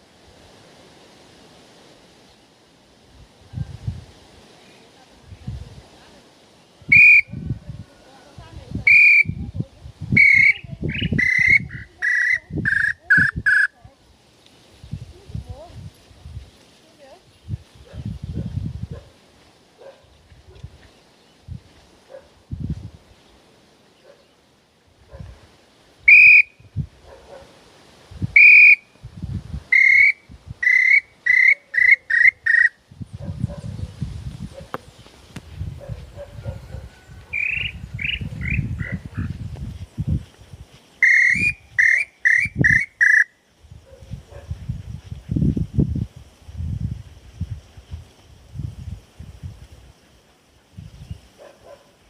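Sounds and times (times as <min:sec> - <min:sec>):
bird-call whistle notes: 0:06.9 - 0:07.4, 0:08.9 - 0:09.4, 0:10.2 - 0:13.7, 0:26.1 - 0:26.6, 0:28.4 - 0:28.9, 0:29.7 - 0:32.8, 0:37.3 - 0:38.7, 0:41.0 - 0:43.3.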